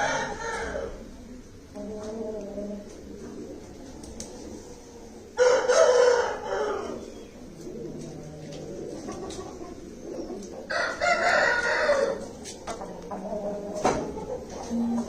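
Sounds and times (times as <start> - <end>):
rooster crowing: 0.0 - 1.0, 5.4 - 7.1, 10.7 - 12.3.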